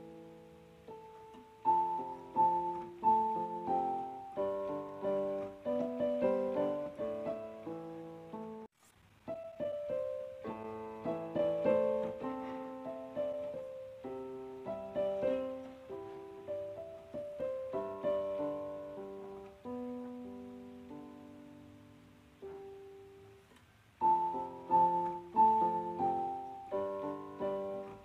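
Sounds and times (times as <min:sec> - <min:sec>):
solo piano playing slow chords: 0:00.0 - 0:08.7, 0:09.3 - 0:28.0.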